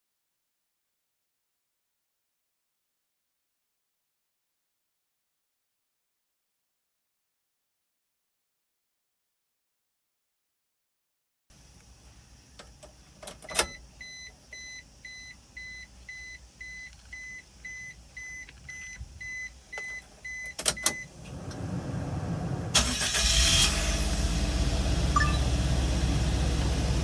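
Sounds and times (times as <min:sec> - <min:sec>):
car engine idling: 0:21.1 - 0:27.0
warning chime beeping: 0:25.2 - 0:25.6.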